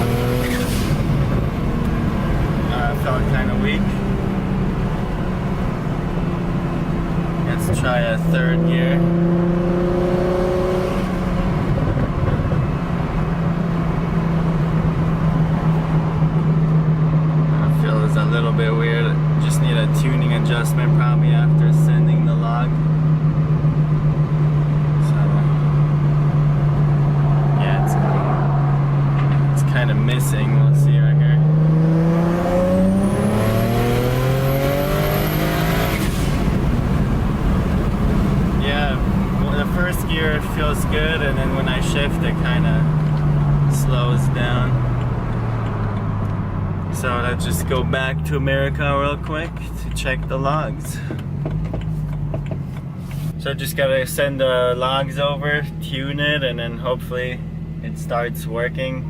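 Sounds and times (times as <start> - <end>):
car engine drone: 0.0 - 59.0
high turbo whine: 0.0 - 59.0
higher tones: 25.4 - 36.6.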